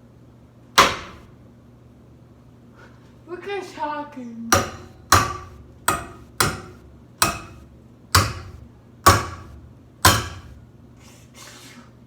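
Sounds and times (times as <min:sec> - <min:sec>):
hard metallic knocks: 0:00.8 - 0:01.3, 0:04.6 - 0:10.6.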